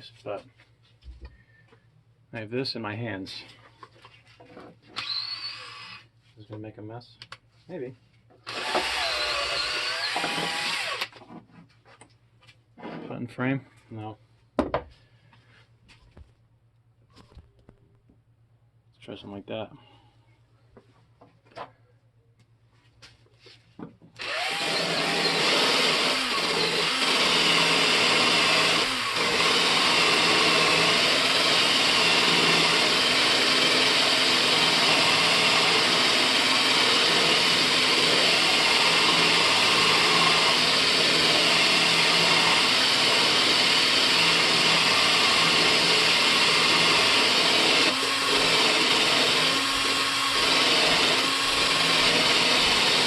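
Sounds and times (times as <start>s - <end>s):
electric drill running: 5.0s - 6.0s, 8.5s - 11.2s, 24.2s - 53.0s.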